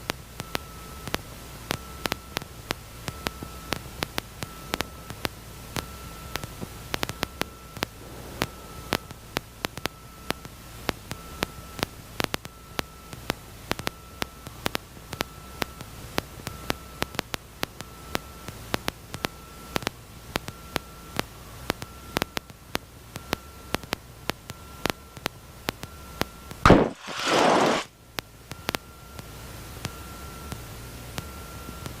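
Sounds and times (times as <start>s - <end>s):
sharp static crackles: 0.0s - 29.9s
faint steady whine: 0.0s - 32.0s
intercom static hiss: 7.8s - 9.6s, 26.7s - 27.9s.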